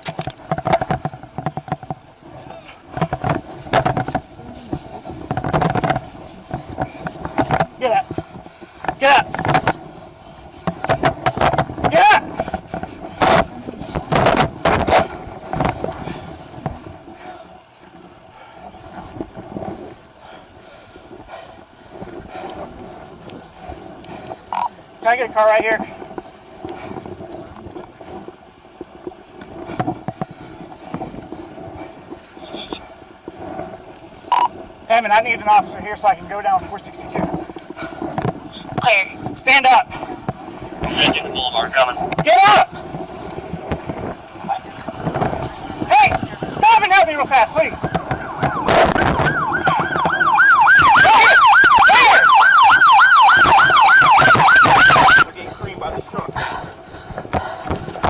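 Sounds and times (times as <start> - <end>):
small knocks: 0.0 - 2.0
microphone rustling and handling: 0.0 - 17.1, 37.1 - 56.4
siren yelping: 47.4 - 55.3.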